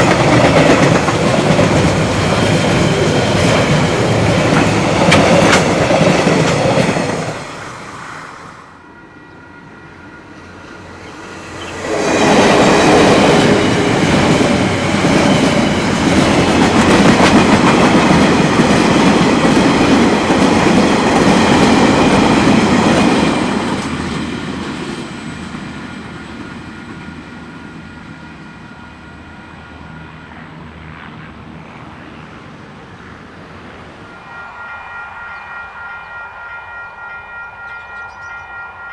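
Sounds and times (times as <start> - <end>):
train wheels on rails: 0.0 - 31.1.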